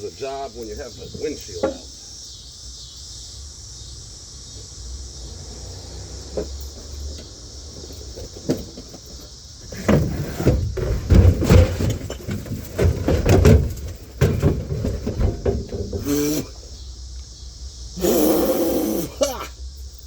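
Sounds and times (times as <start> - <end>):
rustling inside car: 6.3 - 17.0.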